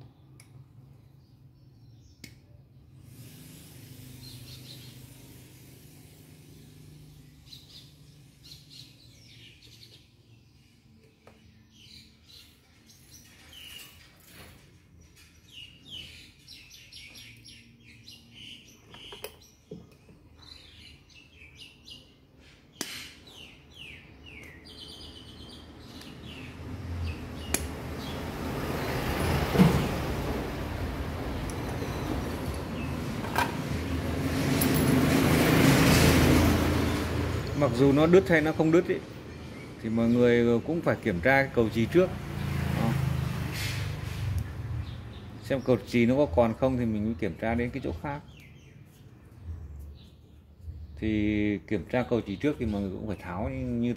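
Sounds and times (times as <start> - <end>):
birds chirping: 0.0 - 53.9
passing traffic rumble: 24.9 - 53.9.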